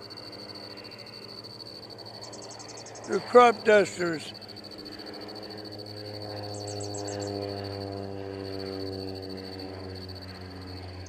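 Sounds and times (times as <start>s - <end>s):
airplane engine drone passing: 0.0s - 11.0s.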